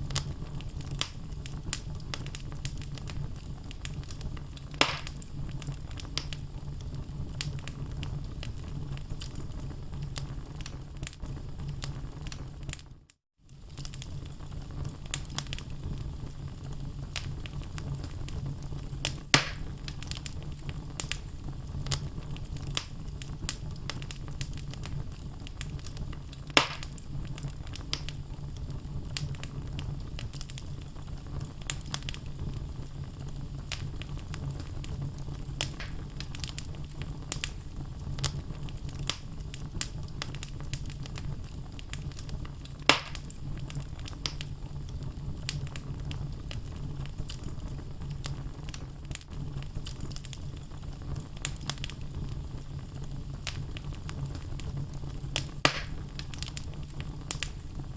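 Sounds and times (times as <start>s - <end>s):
fire rumbling: 0.0s - 57.9s
logs crackling and popping: 0.0s - 57.9s.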